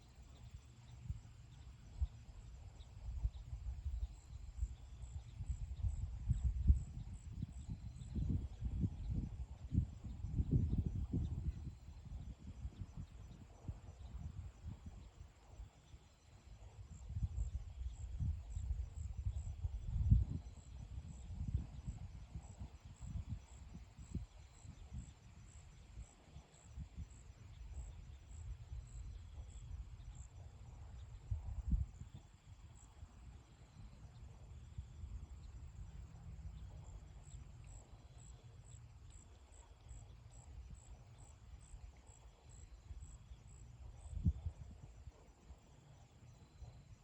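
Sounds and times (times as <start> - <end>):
cricket chirping: 0.0 - 47.0
wind gusting against microphone: 3.0 - 15.1, 17.0 - 26.2, 26.8 - 33.2.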